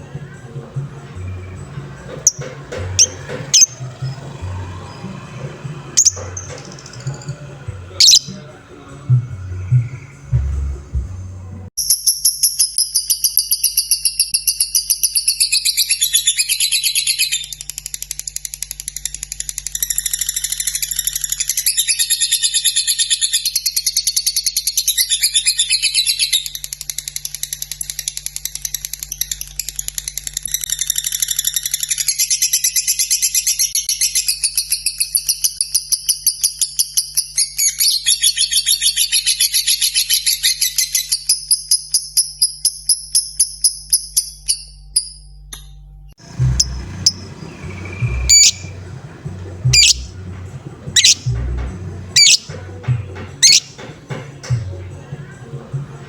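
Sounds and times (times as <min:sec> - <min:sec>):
lovebird chattering song: 0:01.2 - 0:05.3, 0:06.0 - 0:08.6, 0:46.2 - 0:53.9
rapid even ticking: 0:46.2 - 0:53.8.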